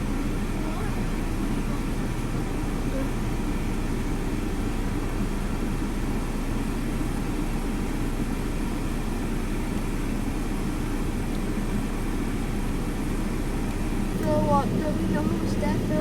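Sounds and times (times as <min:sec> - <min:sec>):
steady low rumble: 0:13.1 - 0:16.0.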